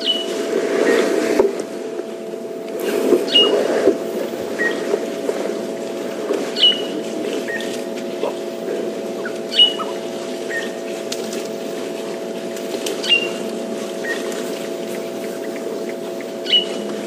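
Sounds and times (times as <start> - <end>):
steady hum: 0.0 - 17.0
bird whistling call: 3.3 - 3.6, 4.6 - 4.8, 6.6 - 6.9, 9.2 - 10.8, 14.9 - 16.8.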